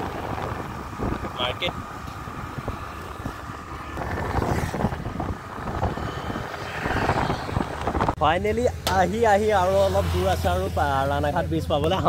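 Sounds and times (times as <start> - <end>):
wind buffeting microphone: 0.0 - 8.2
vehicle rumble on road: 0.0 - 12.0.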